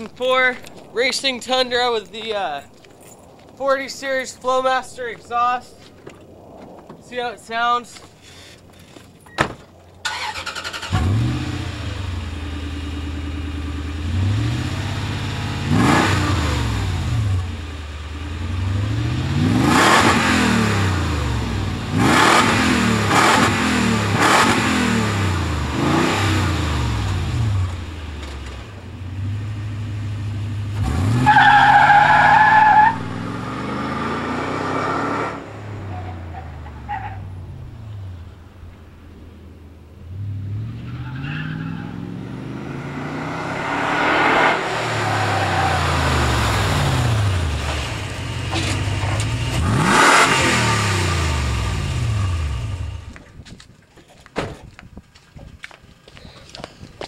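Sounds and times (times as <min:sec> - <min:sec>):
truck engine starting and revving: 0:10.0 - 0:38.6, 0:39.2 - 0:53.2.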